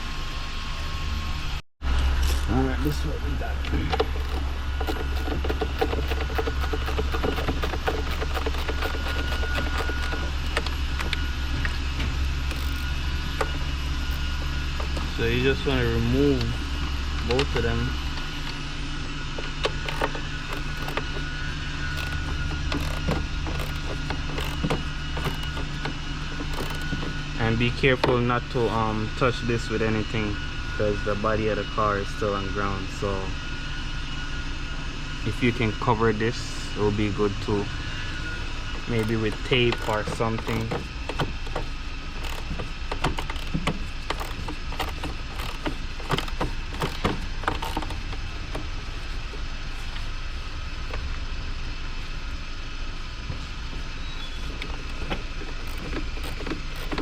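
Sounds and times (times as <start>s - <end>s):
steady low hum: 0.0s - 57.0s
ratchet clicking: 3.9s - 11.8s, 12.4s - 15.2s, 19.3s - 27.2s, 38.8s - 49.1s, 54.4s - 57.0s.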